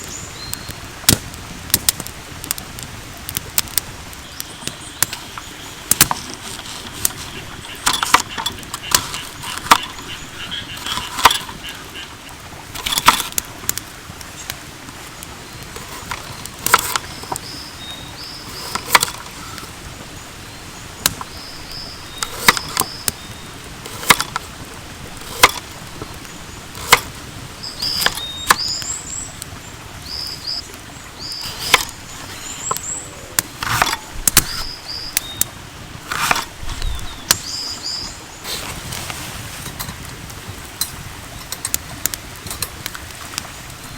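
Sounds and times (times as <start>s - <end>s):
birds calling: 0.0s - 39.8s
cooking gear knocks and clatter: 5.0s - 10.2s, 12.8s - 13.8s, 15.8s - 17.4s, 18.5s - 19.4s, 22.2s - 23.1s, 23.8s - 24.5s, 25.1s - 26.1s, 26.8s - 27.1s, 31.4s - 32.8s, 33.4s - 34.7s.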